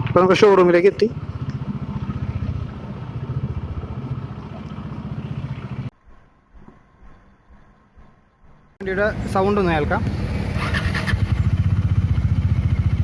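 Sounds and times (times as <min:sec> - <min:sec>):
motorcycle engine running: 0:00.0 - 0:05.9, 0:08.8 - 0:13.0.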